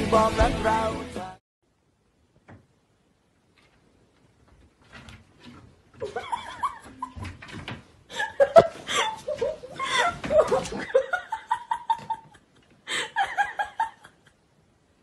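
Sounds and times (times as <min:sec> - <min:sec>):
person laughing: 0:06.0 - 0:07.3, 0:08.1 - 0:14.4.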